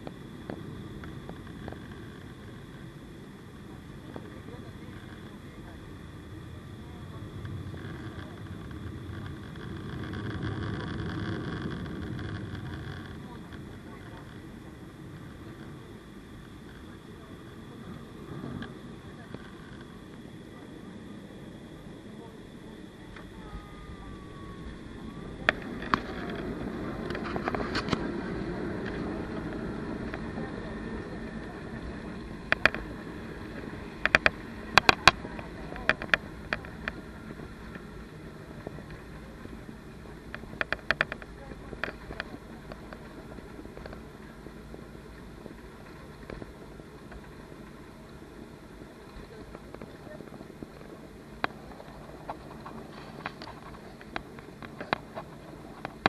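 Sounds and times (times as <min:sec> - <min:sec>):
jet engine and airflow rumble: 0:00.0 - 0:56.0
sharp clicks and knocks: 0:33.6 - 0:37.0, 0:40.3 - 0:43.2.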